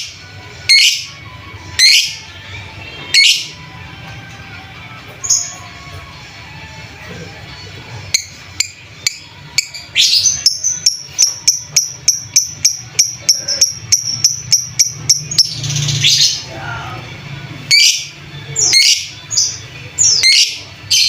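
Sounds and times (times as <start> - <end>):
harsh bird calls: 0.0 - 2.4, 3.0 - 3.7, 8.2 - 16.7, 17.7 - 21.0
lovebird chattering: 1.8 - 2.2, 8.2 - 16.4, 17.7 - 21.0.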